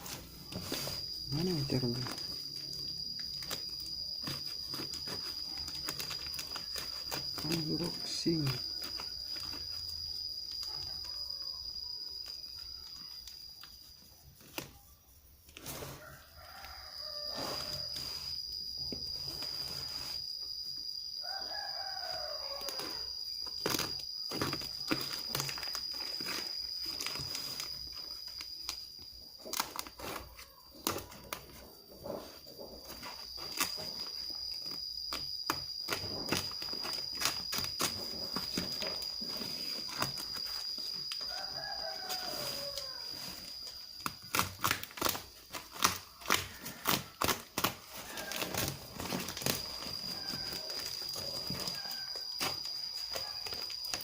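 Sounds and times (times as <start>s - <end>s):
rooster crowing: 15.9s - 18.2s, 21.2s - 23.2s, 40.7s - 43.6s, 47.8s - 53.4s.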